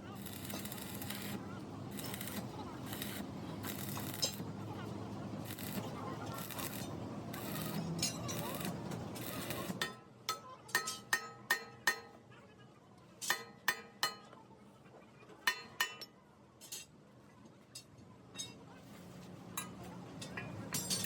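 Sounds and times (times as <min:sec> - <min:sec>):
metal strikes on steel: 0:09.3 - 0:12.2, 0:13.2 - 0:14.3.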